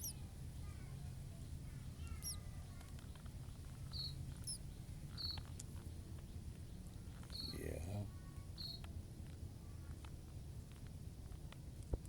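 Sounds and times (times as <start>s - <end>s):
nestlings cheeping: 0.0s - 0.2s, 1.4s - 7.9s, 8.5s - 8.9s
low steady rumble: 0.0s - 12.0s.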